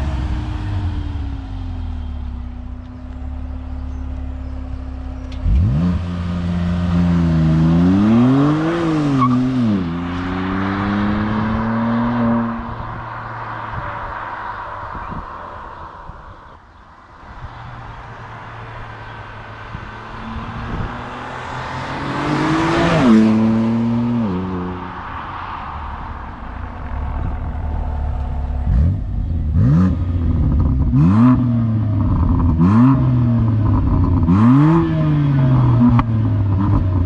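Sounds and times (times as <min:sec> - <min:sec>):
engine revving throttle blips: 0:05.0 - 0:13.8
car engine passing by: 0:05.3 - 0:16.6, 0:17.2 - 0:36.9.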